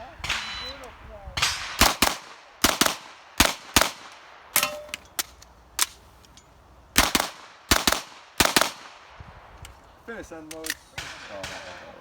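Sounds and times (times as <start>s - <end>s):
carbine firing rapid shots: 1.6s - 4.2s, 7.0s - 8.9s.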